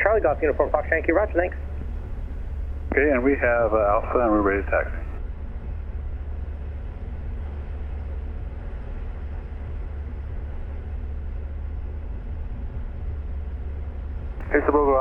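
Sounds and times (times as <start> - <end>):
aircraft piston engine idling: 0.0 - 5.2, 14.4 - 15.0.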